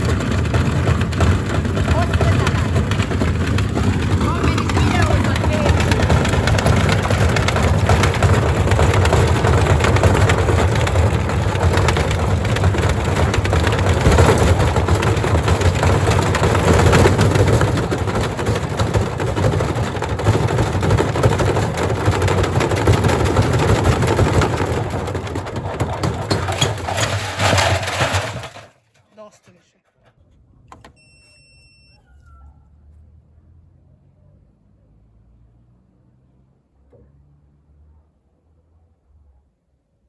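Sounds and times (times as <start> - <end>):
washing machine drum humming: 0.0 - 28.6
bricks banging in washing machine: 0.0 - 28.9.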